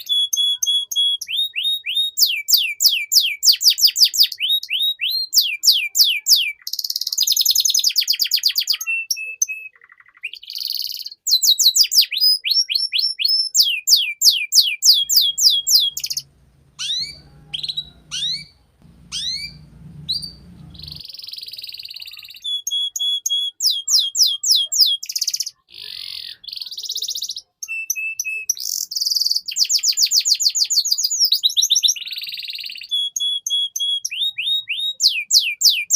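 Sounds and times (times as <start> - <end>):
canary singing: 7.8 - 26.8, 31.8 - 35.9
faint low hum: 15.0 - 21.0.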